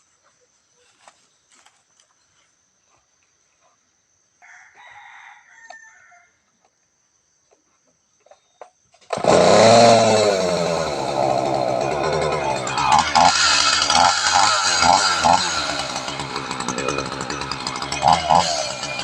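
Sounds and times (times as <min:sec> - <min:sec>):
chainsaw engine revving: 0:09.1 - 0:19.0.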